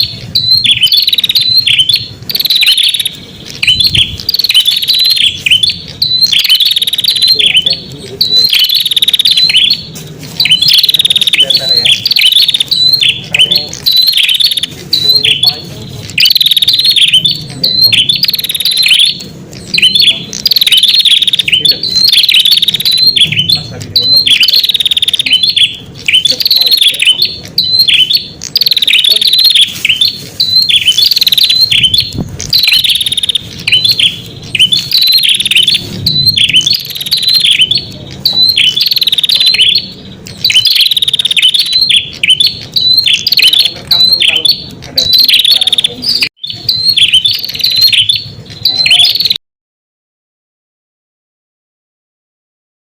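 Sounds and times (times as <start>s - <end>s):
bird chirping rapidly: 0.0s - 49.4s.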